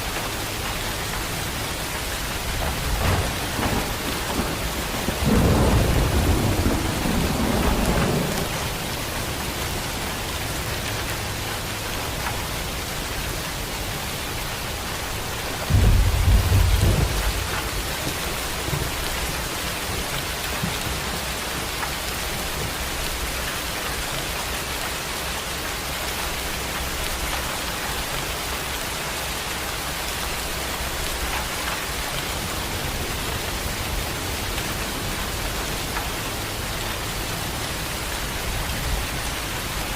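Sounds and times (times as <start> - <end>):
heavy rain falling: 0.0 - 39.9
thunder rumbling: 1.0 - 10.3, 14.8 - 23.4.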